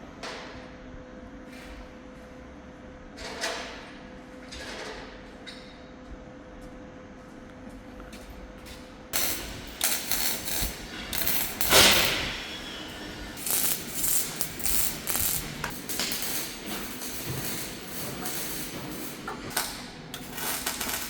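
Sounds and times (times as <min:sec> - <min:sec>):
metal ratcheting and clattering: 0:13.4 - 0:21.0.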